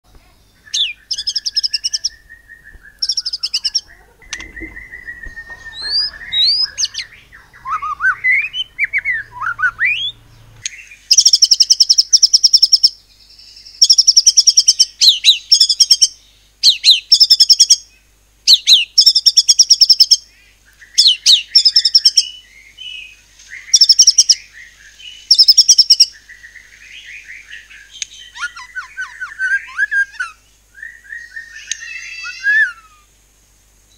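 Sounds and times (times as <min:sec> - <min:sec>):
bird singing whistled phrases: 0:00.6 - 0:12.9, 0:13.8 - 0:17.8, 0:18.5 - 0:20.2, 0:20.9 - 0:22.4, 0:25.3 - 0:26.1, 0:28.0 - 0:33.1
bird rapid trilled bursts: 0:03.0 - 0:12.9.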